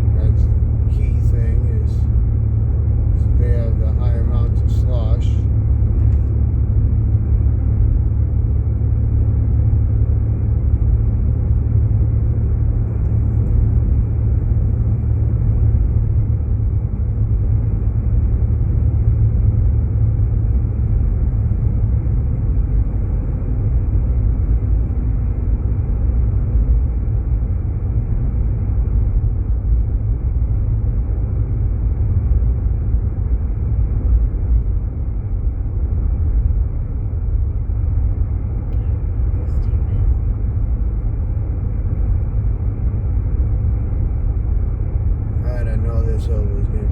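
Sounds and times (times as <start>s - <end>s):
car cabin road rumble: 0.0s - 46.9s.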